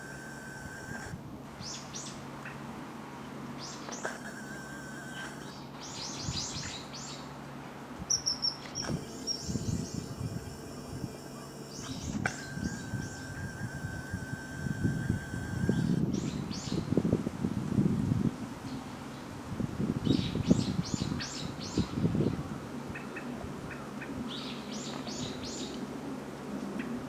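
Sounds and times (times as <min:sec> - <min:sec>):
faint high hum: 0:00.0 - 0:17.0
birds chirping: 0:03.6 - 0:07.3, 0:08.1 - 0:16.8.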